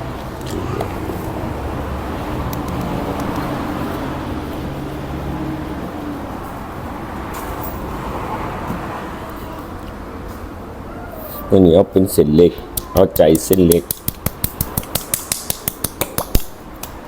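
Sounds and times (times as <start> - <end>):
low motor hum: 0.0 - 8.9
traffic noise: 0.0 - 17.0.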